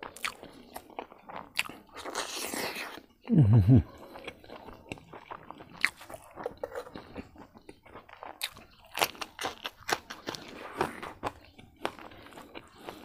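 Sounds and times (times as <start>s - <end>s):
chewing with wet smacks: 0.0s - 13.0s
crunchy bites: 4.9s - 13.0s.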